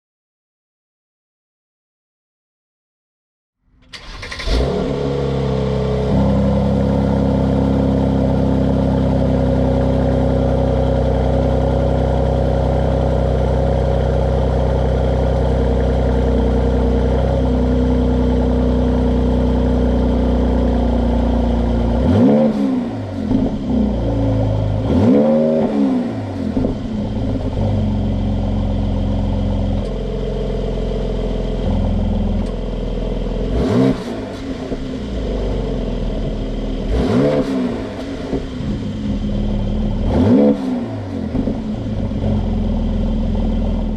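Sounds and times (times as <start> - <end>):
engine revving: 3.8 - 11.6, 20.2 - 30.7, 31.4 - 43.9
car engine idling: 3.8 - 22.2, 22.8 - 25.2, 26.1 - 43.9.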